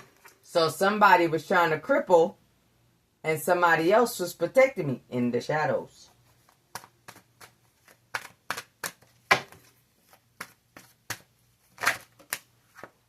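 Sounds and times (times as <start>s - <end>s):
faint steady hum: 0.0s - 13.0s
cards being shuffled: 6.3s - 13.0s.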